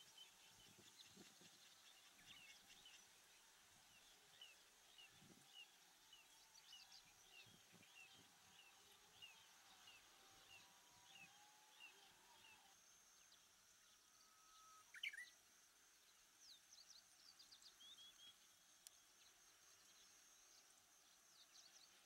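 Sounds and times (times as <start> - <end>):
faint high bird chirp: 3.9 - 15.4, 16.4 - 22.0.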